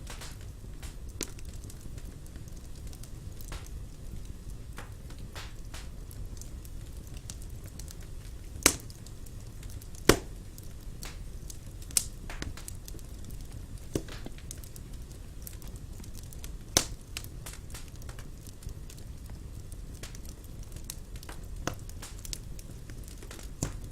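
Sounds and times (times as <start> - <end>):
sharp fire pops: 0.0 - 23.9
wood fire crackling: 0.0 - 23.9.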